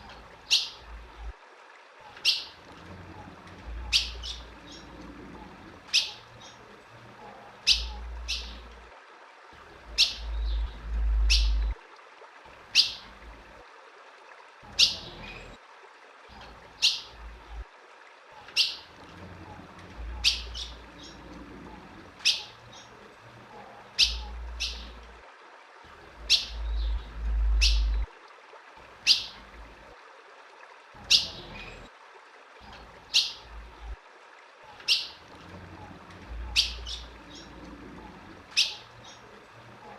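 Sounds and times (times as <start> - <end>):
bird chirp calls: 2.2 - 2.6, 3.8 - 4.9, 5.9 - 6.6, 7.6 - 8.7, 10.0 - 11.8, 20.2 - 21.2, 22.2 - 22.9, 24.0 - 25.0, 26.2 - 28.1, 29.0 - 29.4, 34.8 - 35.2, 36.4 - 37.6, 38.5 - 39.3
low rumbles: 9.8 - 11.8, 26.0 - 28.1.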